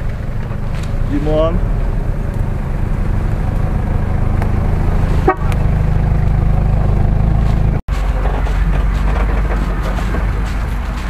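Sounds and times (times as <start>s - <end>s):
truck engine running at low revs: 0.0s - 11.0s
short horn toot: 5.2s - 5.5s.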